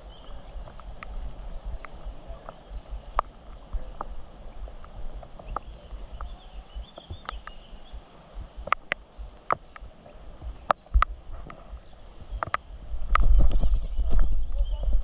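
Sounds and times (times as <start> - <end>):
wind buffeting microphone: 0.0 - 15.0
light ticks and taps: 4.8 - 13.3.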